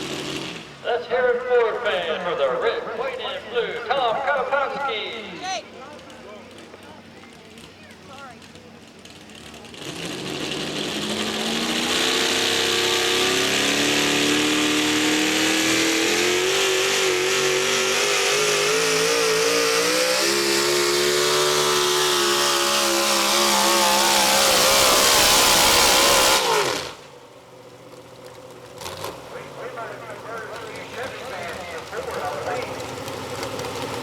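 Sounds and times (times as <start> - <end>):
truck engine high-revving: 0.0 - 34.0.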